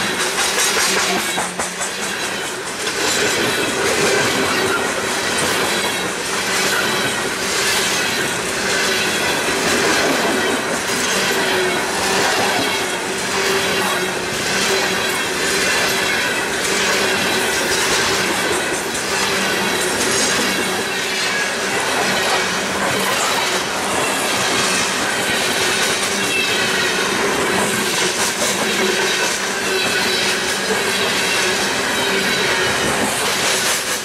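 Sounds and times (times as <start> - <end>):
steel wheels rumbling on rail: 0.0 - 34.0
train trucks clattering: 0.0 - 34.0.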